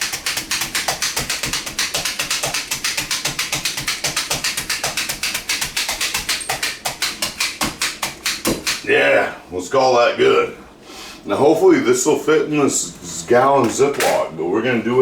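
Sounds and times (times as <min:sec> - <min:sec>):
meat tenderizer clicking: 0:00.0 - 0:08.9.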